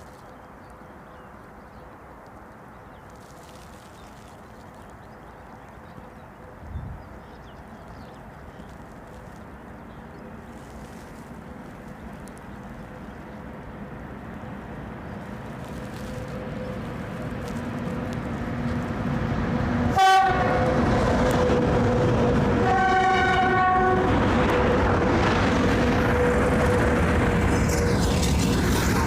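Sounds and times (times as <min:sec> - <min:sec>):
freight train rumble: 0:00.0 - 0:29.0
locomotive horn blasts: 0:19.9 - 0:21.5, 0:22.5 - 0:24.2.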